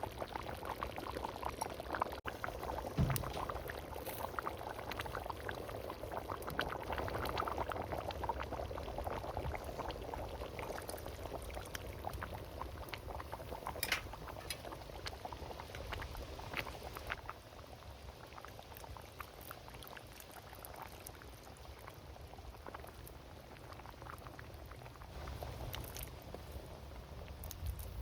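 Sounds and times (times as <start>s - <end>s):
stew bubbling in a pot: 0.0s - 28.0s.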